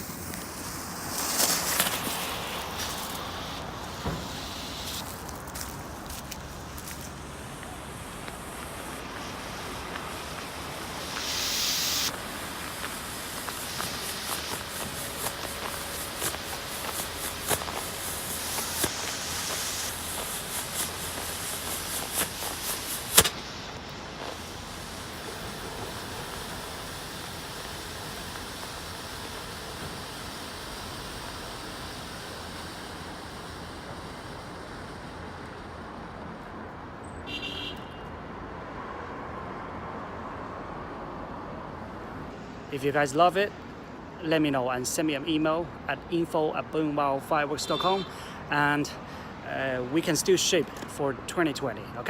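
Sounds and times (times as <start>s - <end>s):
small crackles: 0.0s - 36.0s
smoke firework hissing: 0.0s - 37.8s, 42.2s - 50.9s
traffic-like background noise: 0.0s - 52.0s.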